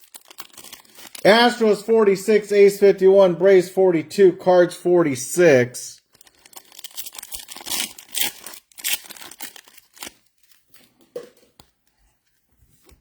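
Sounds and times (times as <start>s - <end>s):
wrappers tearing and crinkling: 0.0s - 1.5s, 6.1s - 11.0s.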